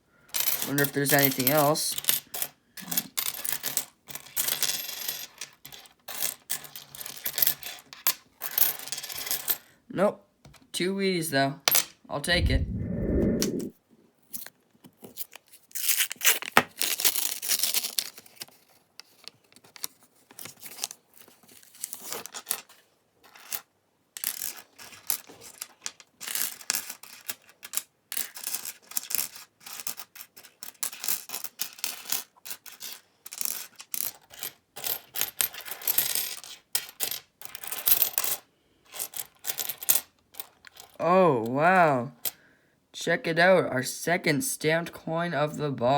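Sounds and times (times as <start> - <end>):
coins clinking and sliding: 3.2 - 7.8.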